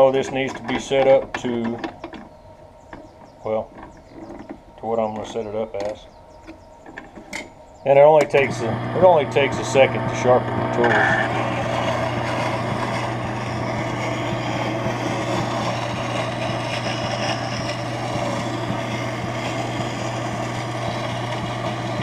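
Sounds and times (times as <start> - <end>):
grinder motor hum: 0.0 - 22.0
whetstone grinding steel: 8.3 - 22.0.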